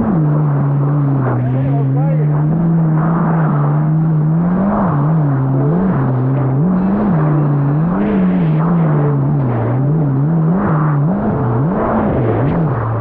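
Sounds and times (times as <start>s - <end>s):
jet ski engine running: 0.0s - 13.0s.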